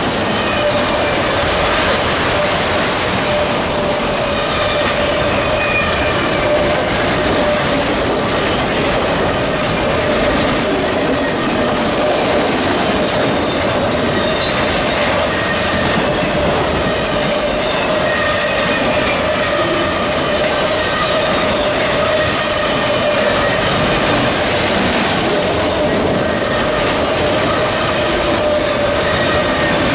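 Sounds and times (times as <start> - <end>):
freight train wheel-on-rail noise: 0.0 - 29.9
wheel squeal: 25.7 - 27.8, 28.4 - 29.9.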